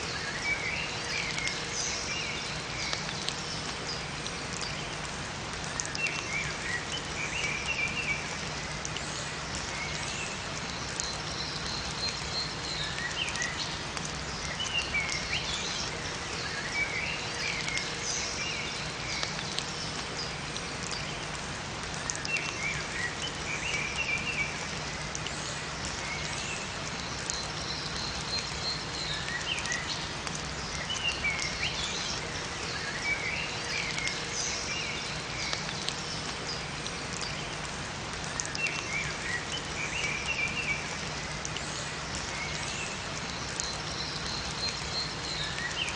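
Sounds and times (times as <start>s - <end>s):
songbirds chirping: 0.0s - 45.9s
steady rain: 0.0s - 45.9s.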